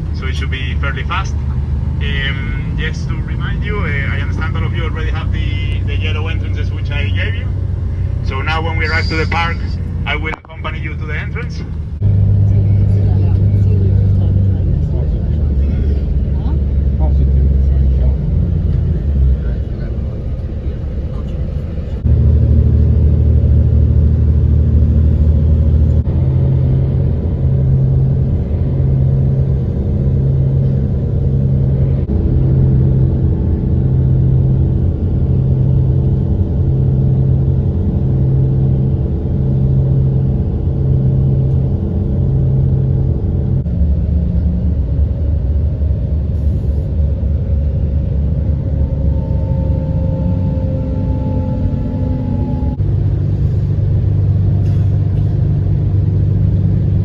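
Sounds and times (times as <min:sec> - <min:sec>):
bus engine and road noise: 0:00.0 - 0:57.0
pulsing low tone: 0:02.6 - 0:57.0
faint whine falling in pitch: 0:48.7 - 0:52.9.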